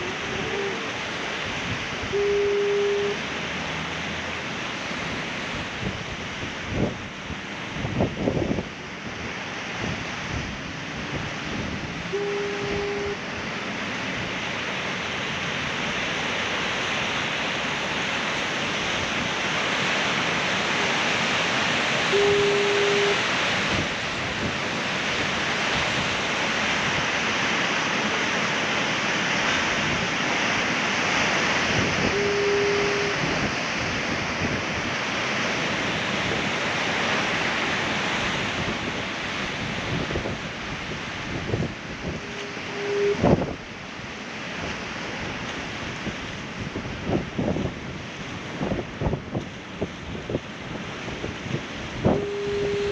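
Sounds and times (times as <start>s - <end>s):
foghorn blast: 0.0s - 3.4s, 12.0s - 13.5s, 20.5s - 23.9s, 27.6s - 33.8s, 41.6s - 43.6s, 52.0s - 52.9s
surf washing against rocks: 0.0s - 52.9s.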